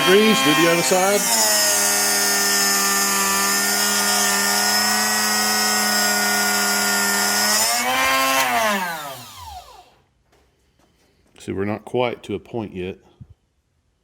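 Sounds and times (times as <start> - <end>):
sharpener motor running: 0.0 - 9.9
grinding wheel grinding drill bit: 0.0 - 10.0.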